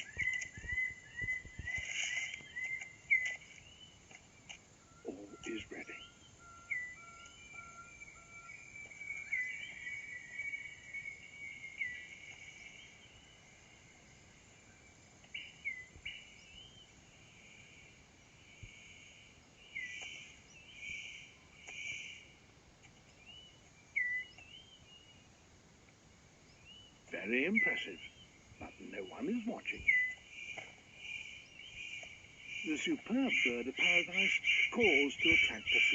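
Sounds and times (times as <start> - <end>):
insects chirring: 0.0 - 23.3, 26.6 - 35.9
hooked bird whistles: 23.3 - 24.8, 29.8 - 30.2.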